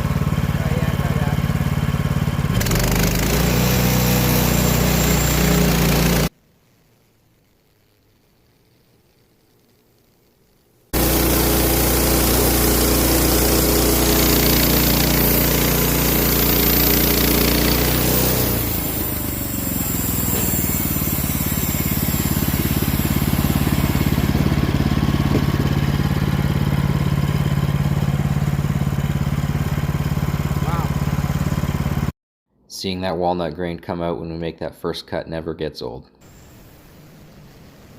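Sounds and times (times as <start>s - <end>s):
saw cutting through log: 0.0s - 6.3s, 11.0s - 32.1s
sawmill engine running: 0.0s - 6.3s, 11.0s - 32.1s.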